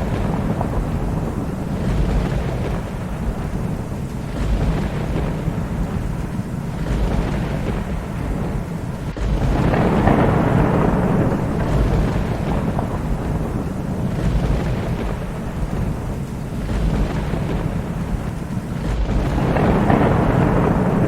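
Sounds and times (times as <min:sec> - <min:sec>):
steady rain: 0:00.0 - 0:21.0
thunder rumbling: 0:00.0 - 0:21.0.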